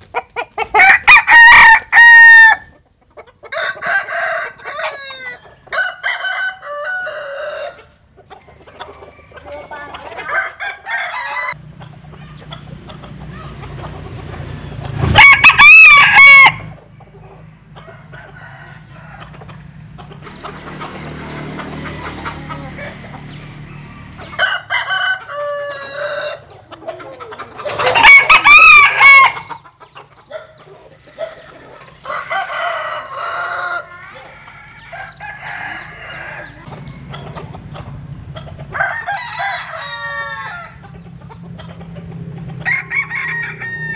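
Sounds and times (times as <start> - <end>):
chicken clucking: 0.0 - 15.8, 16.5 - 43.9
rooster crowing: 0.6 - 2.7, 3.4 - 7.9, 8.5 - 11.6, 15.1 - 19.9, 23.5 - 26.5, 27.7 - 29.6, 31.1 - 37.3, 38.7 - 40.8, 42.6 - 43.9.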